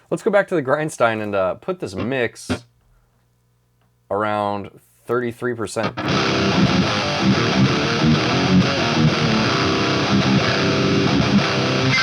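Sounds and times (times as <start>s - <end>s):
distorted electric guitar riff: 5.8s - 12.0s.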